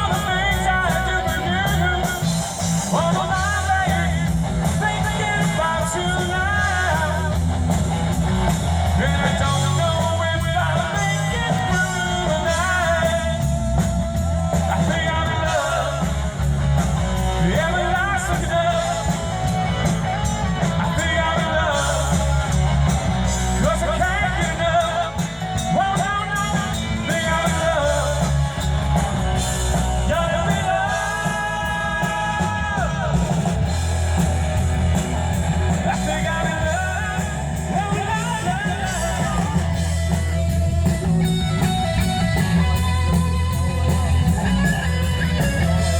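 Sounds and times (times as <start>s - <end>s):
loud bass and drums: 0.0s - 45.9s
person singing: 8.9s - 33.9s, 35.6s - 45.9s.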